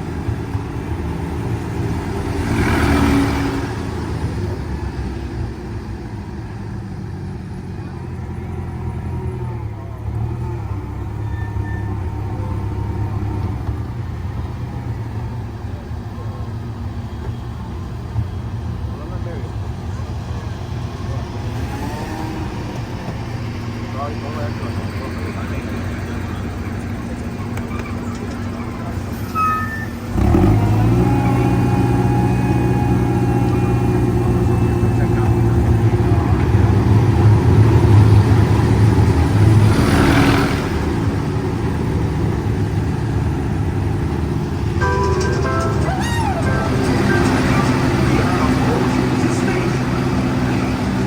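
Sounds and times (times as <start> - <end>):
train rolling on track: 0.0 - 51.0
brief high tone: 44.8 - 49.0.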